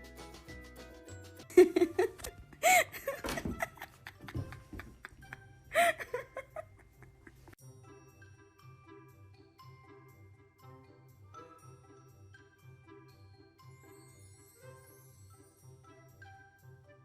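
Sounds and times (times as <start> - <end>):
background music: 0.0 - 17.0
high-pitched laughter bursts: 1.6 - 7.6.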